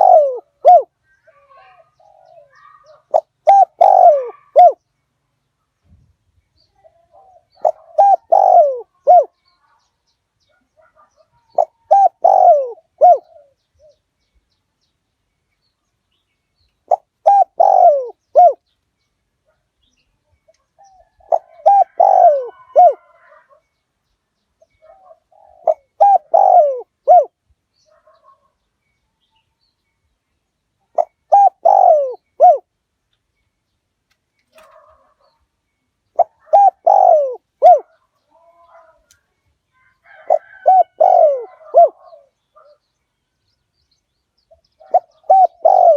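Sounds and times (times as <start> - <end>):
dove cooing: 0.0 - 4.8, 6.8 - 9.4, 10.8 - 14.0, 16.9 - 18.6, 20.8 - 23.6, 24.6 - 28.5, 30.9 - 32.7, 34.5 - 35.4, 36.1 - 39.1, 40.0 - 42.8, 44.5 - 45.9.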